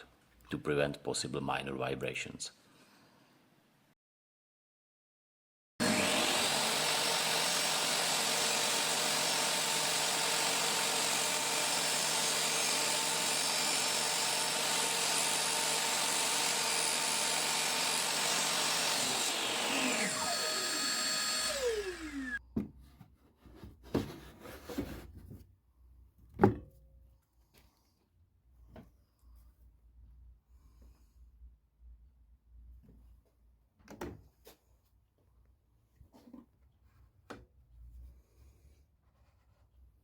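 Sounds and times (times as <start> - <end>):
power tool motor whining: 5.8 - 22.4.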